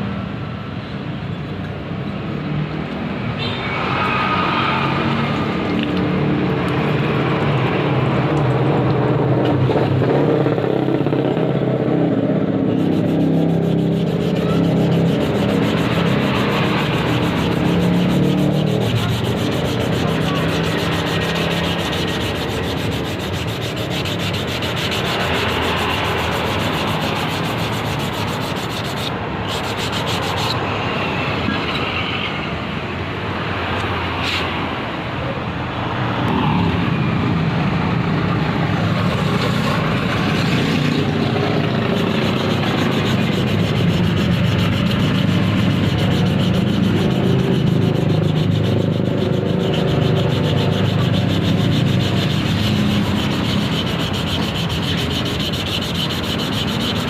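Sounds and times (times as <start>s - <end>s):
boat engine running: 12.6s - 30.5s, 41.0s - 57.0s.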